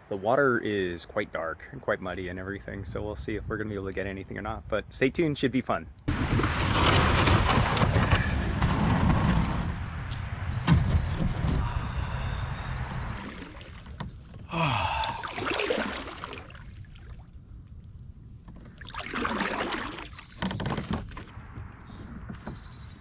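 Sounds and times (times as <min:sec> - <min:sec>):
paddle strokes splashing in water: 0:13.1 - 0:17.4, 0:18.4 - 0:21.4.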